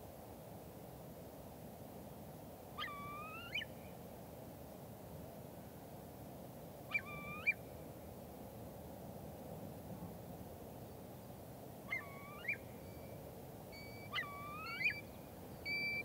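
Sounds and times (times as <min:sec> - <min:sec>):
bird calling harshly: 0:13.8 - 0:15.0.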